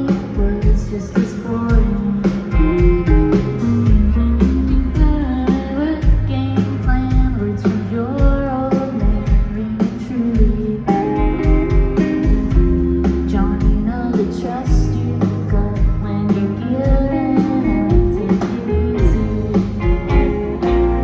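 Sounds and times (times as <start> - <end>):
live rock band playing: 0.0 - 21.0
person singing lead vocal: 0.0 - 21.0
drum beat: 1.7 - 5.3, 10.4 - 13.9, 19.0 - 21.0.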